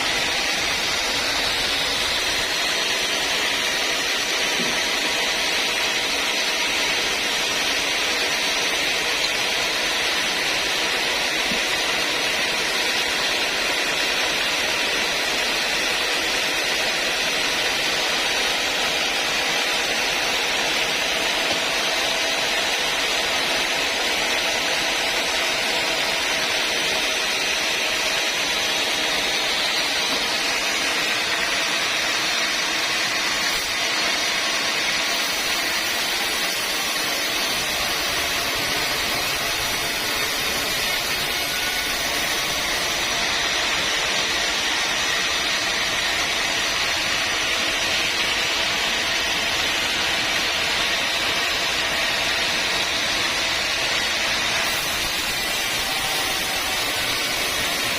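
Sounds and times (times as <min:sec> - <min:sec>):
saw whining through wood: 0:00.0 - 0:57.9.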